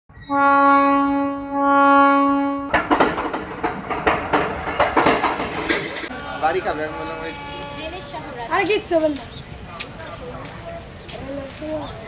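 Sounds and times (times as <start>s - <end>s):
train horn blasts: 0.2s - 2.8s, 6.1s - 8.2s
train wheels clattering: 2.6s - 6.1s.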